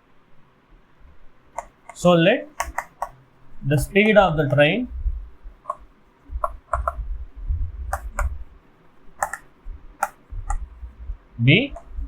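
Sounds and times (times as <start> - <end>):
keyboard keystrokes: 1.6 - 3.2, 5.7 - 7.0, 7.9 - 8.4, 9.2 - 10.7, 11.7 - 12.0
low rumble: 4.9 - 5.6, 6.3 - 8.6, 9.6 - 12.0.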